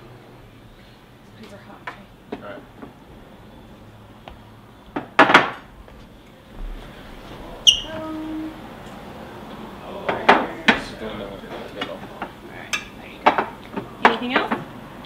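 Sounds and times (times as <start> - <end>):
dishes knocking on a counter: 5.0 - 5.6, 10.0 - 11.0, 13.2 - 14.7.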